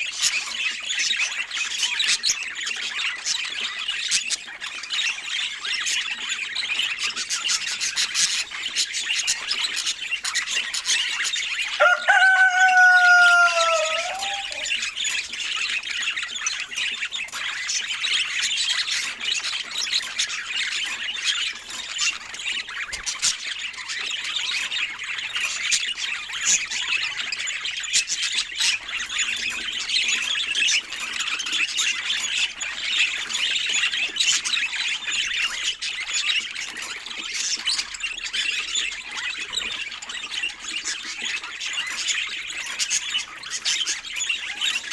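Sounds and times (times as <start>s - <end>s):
loud pitched bird call: 11.8s - 14.7s.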